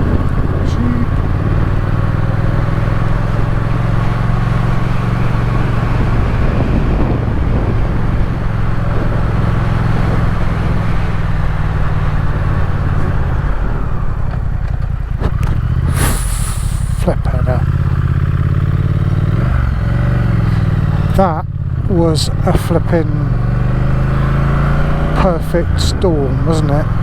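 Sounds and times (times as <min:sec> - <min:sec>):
wind noise: 0:00.0 - 0:03.8, 0:04.7 - 0:17.1
motorcycle engine running: 0:00.0 - 0:27.0
road noise: 0:00.0 - 0:27.0.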